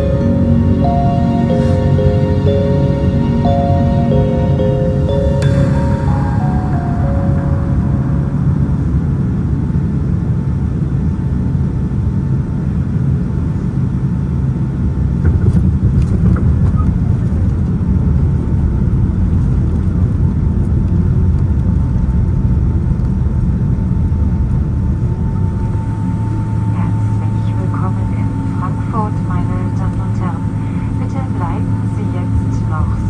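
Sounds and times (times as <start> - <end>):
faint steady whine: 0.0 - 11.8, 24.5 - 33.0.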